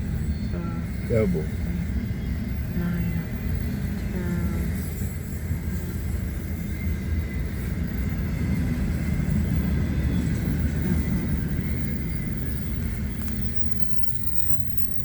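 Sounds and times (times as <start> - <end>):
freight train wheels rumbling on rail: 0.0 - 15.0.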